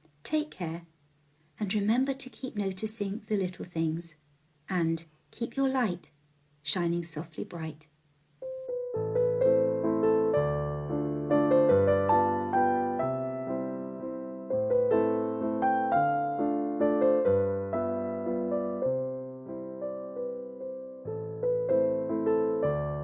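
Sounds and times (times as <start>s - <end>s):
gentle solo piano music: 8.4s - 23.0s.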